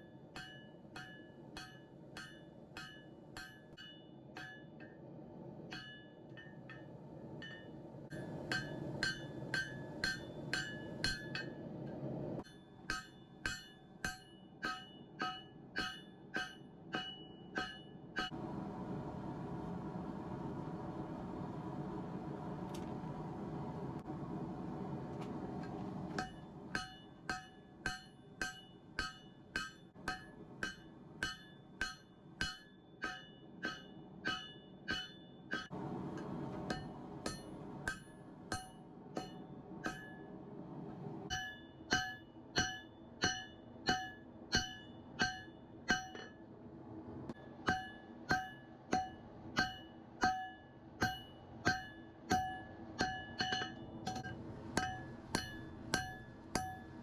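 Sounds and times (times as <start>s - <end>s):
hammer striking steel on anvil: 0.0s - 5.0s, 5.6s - 18.4s, 25.6s - 40.3s, 41.3s - 46.4s, 47.3s - 57.0s
low steady rushing noise: 18.3s - 26.8s, 35.7s - 41.3s.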